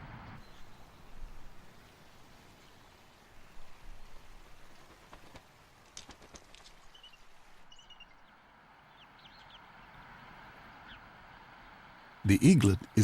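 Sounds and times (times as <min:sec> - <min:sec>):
faint steady hiss: 0:00.0 - 0:13.0
bird chirps: 0:06.9 - 0:09.6.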